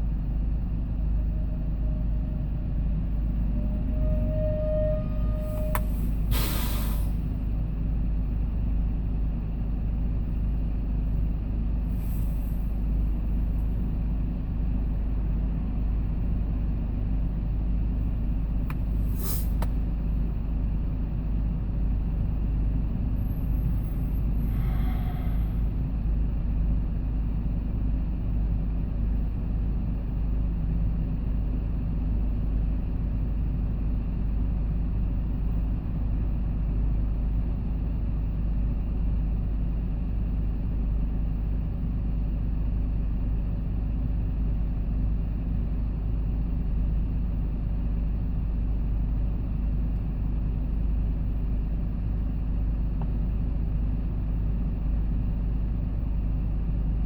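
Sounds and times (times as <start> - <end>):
road noise: 0.0 - 26.4
truck engine rumble: 0.0 - 57.0.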